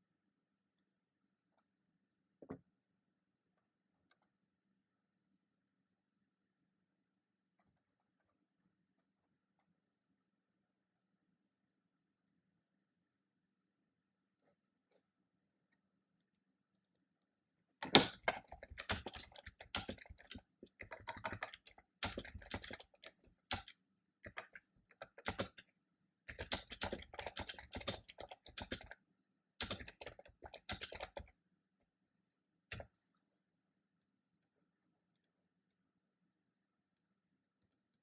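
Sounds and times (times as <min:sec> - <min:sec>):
typing on computer keyboard: 0:17.8 - 0:25.7, 0:26.3 - 0:29.0, 0:29.6 - 0:31.3.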